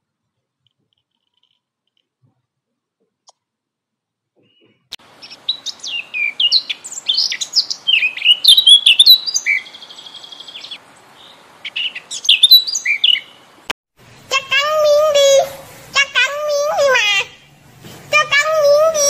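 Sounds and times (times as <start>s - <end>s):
small birds chirping: 4.4s - 13.6s
buzzy bird trill: 4.5s - 13.3s.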